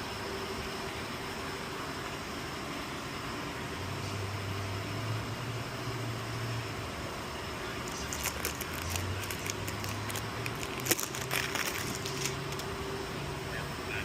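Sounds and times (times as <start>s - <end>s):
steady low hum: 0.0s - 14.0s
small clicks and crackling: 7.8s - 12.7s.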